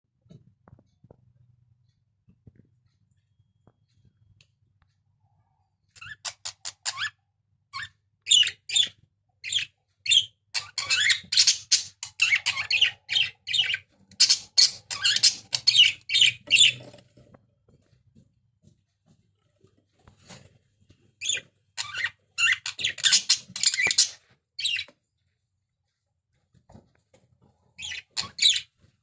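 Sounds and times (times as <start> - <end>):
budgerigars chirping and chattering: 6.0 - 7.2, 7.8 - 17.0, 21.2 - 24.9, 27.8 - 28.7.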